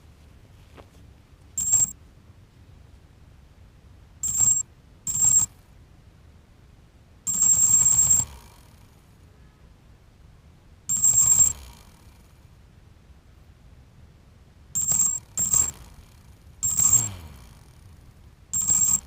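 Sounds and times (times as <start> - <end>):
quadcopter motors whining: 10.9 - 12.0, 14.8 - 17.9, 18.6 - 19.0.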